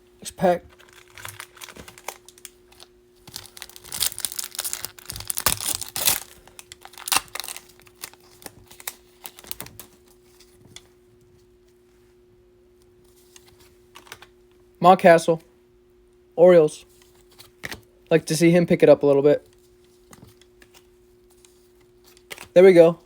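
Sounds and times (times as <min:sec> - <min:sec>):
foil wrapper tearing and crinkling: 0:00.7 - 0:10.0
cards clicking and rustling: 0:00.7 - 0:10.9, 0:13.3 - 0:14.3, 0:19.5 - 0:23.0.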